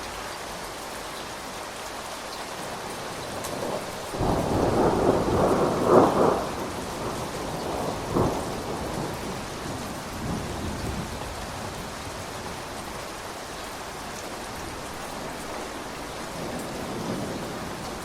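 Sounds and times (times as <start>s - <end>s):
steady rain: 0.0s - 18.0s
thunder rumbling: 3.0s - 13.0s, 14.4s - 18.0s.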